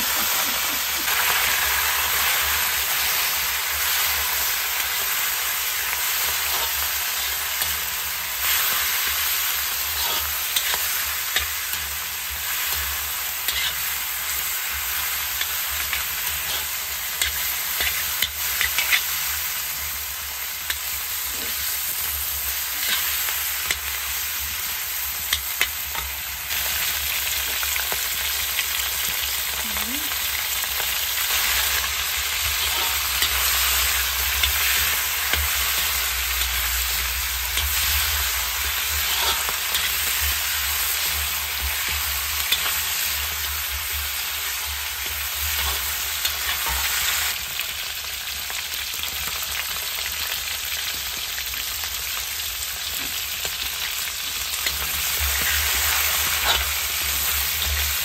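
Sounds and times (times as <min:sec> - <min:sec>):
chicken sizzling in a wok: 0:00.0 - 0:58.0
metal ladle scraping a pan: 0:12.8 - 0:14.0, 0:31.5 - 0:40.4, 0:55.4 - 0:56.8.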